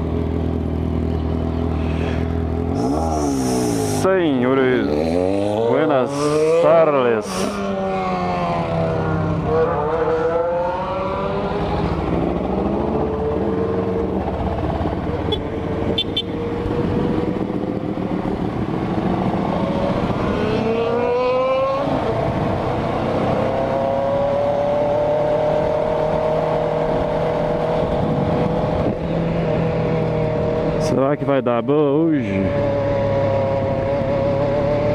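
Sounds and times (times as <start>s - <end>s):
motorcycle engine revving: 0.0s - 31.2s, 32.0s - 34.9s
road noise: 0.0s - 34.9s
wind noise: 26.8s - 29.6s.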